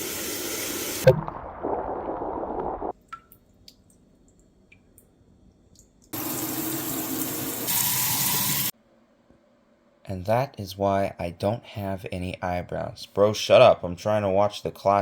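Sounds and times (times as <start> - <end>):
tap water running: 6.1 - 8.7.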